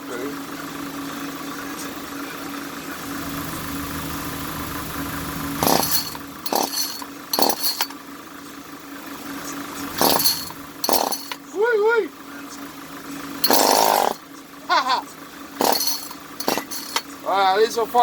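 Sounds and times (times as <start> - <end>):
steady hum: 3.0 - 7.9
chainsaw recoil starter pulls: 5.6 - 7.9, 10.0 - 11.4, 13.4 - 14.2.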